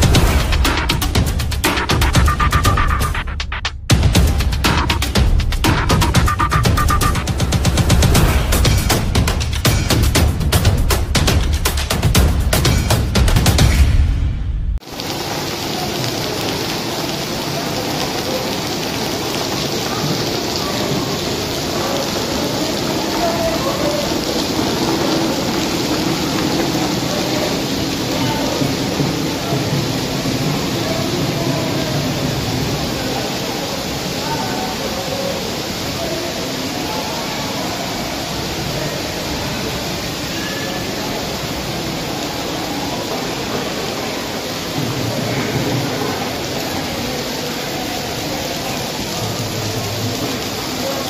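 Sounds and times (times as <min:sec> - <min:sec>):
indistinct voices: 0:00.0 - 0:11.9, 0:15.2 - 0:51.0
heavy rain splashing on pavement: 0:00.0 - 0:14.2, 0:14.8 - 0:51.0.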